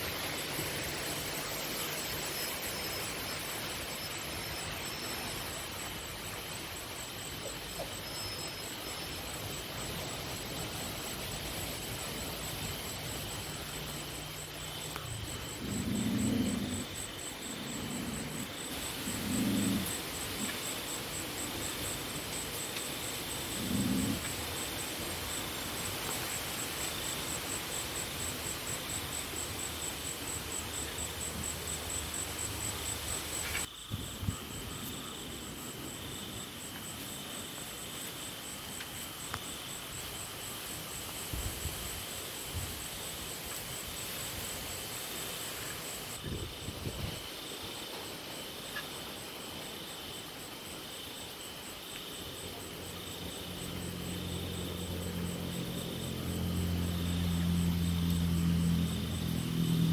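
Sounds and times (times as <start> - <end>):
slower pulsing insect note: 0.0 - 40.2, 52.2 - 59.9
insects chirring: 0.0 - 59.9
wind on microphone: 46.2 - 47.3.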